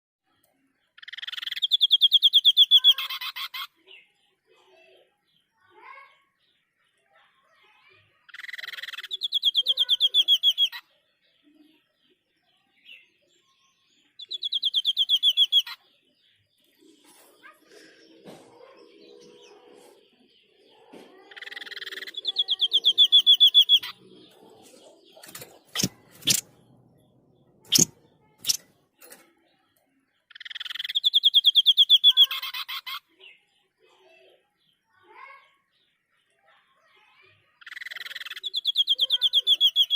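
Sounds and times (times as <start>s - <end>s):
bird trilled call: 14.2s - 15.8s, 21.3s - 24.0s, 27.7s - 28.6s, 30.3s - 33.0s, 37.6s - 39.9s
bird rapid repeated notes: 25.2s - 26.5s, 27.7s - 28.6s
sharp clicks: 25.2s - 26.5s, 27.7s - 28.7s
bird buzzy rattle: 25.2s - 26.6s, 27.7s - 29.3s.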